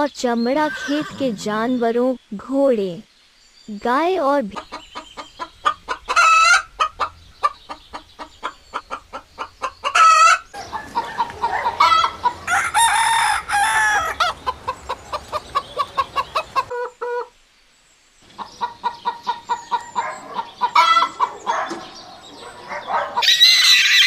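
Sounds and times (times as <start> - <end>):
chickens clucking: 4.4 - 17.4, 18.2 - 24.0
rooster crowing: 10.0 - 14.6, 23.2 - 24.0.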